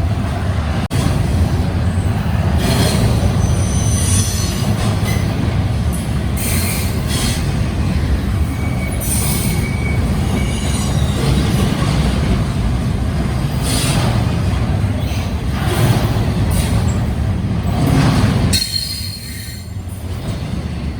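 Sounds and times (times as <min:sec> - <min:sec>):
train rumbling on rails: 0:00.0 - 0:20.9
high-pitched wheel squeals: 0:08.4 - 0:11.6, 0:18.5 - 0:19.8.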